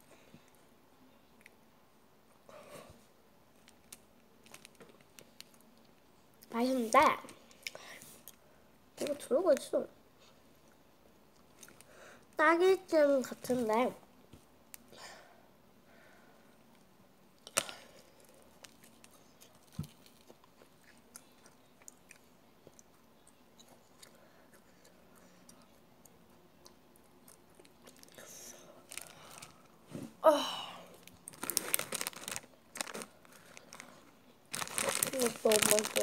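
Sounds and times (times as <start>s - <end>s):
person chewing sweet: 17.4s - 28.2s.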